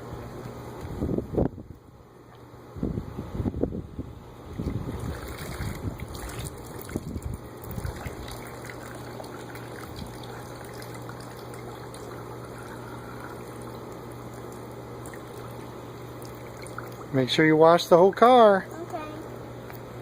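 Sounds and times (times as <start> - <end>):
low hum: 0.0 - 20.0
water trickling: 4.5 - 17.2.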